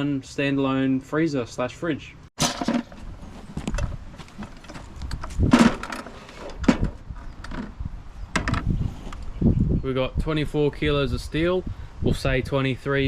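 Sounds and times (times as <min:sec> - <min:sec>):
scrap metal knocks and clatter: 0:02.4 - 0:07.7.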